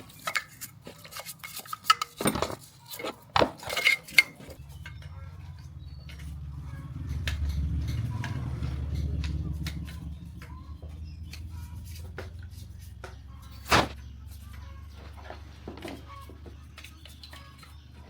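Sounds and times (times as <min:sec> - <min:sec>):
metal tools clicking and knocking: 0:00.0 - 0:11.6.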